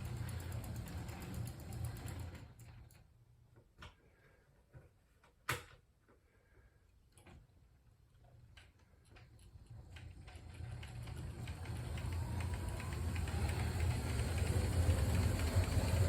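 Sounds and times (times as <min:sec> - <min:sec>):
model train motor hum: 0:00.0 - 0:02.6, 0:09.4 - 0:16.0.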